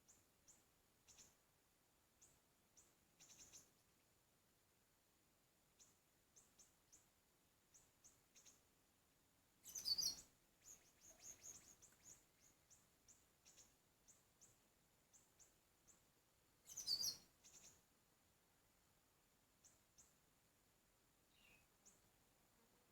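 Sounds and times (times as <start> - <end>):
faint high bird chirps: 0.0 - 1.4, 2.2 - 4.0, 7.7 - 8.7, 9.6 - 17.9, 21.2 - 22.1.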